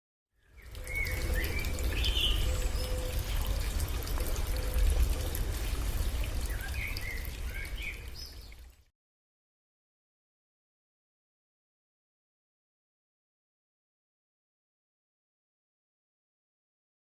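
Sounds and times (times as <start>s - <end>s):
water trickling in a stream: 0.4s - 8.9s.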